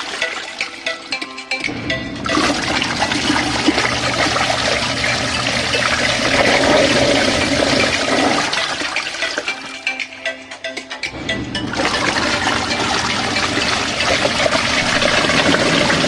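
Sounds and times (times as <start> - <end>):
water rushing in washing machine: 0.0 - 0.6, 2.1 - 9.7, 11.6 - 16.0
low motor hum: 1.7 - 8.4, 11.1 - 16.0.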